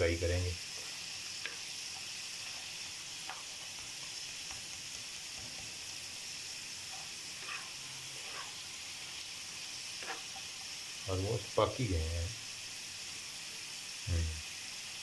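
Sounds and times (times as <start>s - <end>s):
fries sizzling in oil: 0.0s - 15.0s
faint pops and crackles: 0.8s - 5.9s.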